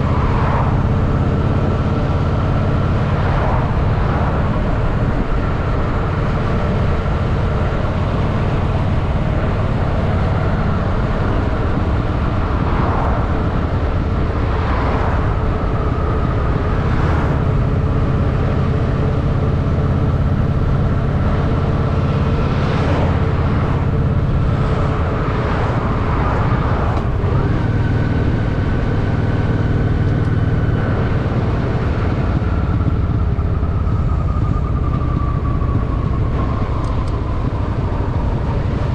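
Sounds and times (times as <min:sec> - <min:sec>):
motorcycle engine running: 0:00.0 - 0:38.9
swells of traffic noise: 0:00.0 - 0:38.9.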